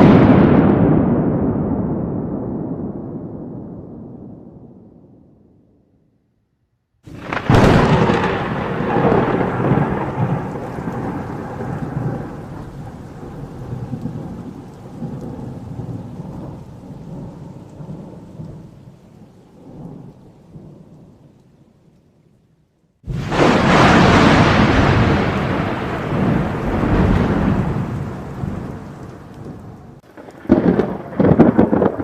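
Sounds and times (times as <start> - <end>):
thunder crack and rolling rumble: 0.0 - 5.6, 7.1 - 21.4, 23.1 - 32.0.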